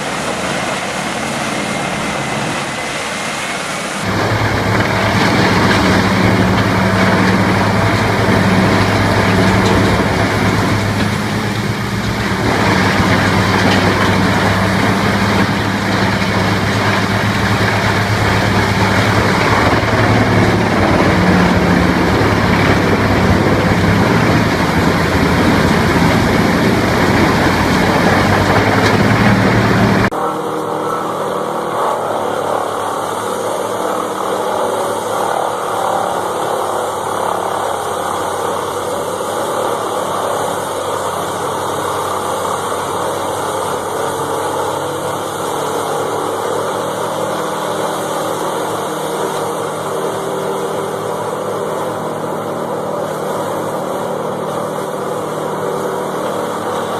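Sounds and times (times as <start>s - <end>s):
machine engine humming: 0.0s - 56.9s
rough machine working noise: 0.0s - 56.9s
quieter machine sound: 4.0s - 35.4s.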